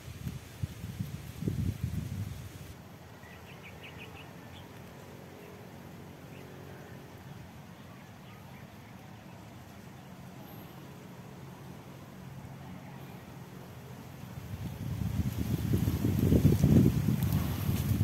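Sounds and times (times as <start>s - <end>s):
leaves brushing: 0.0s - 5.8s, 14.0s - 18.0s.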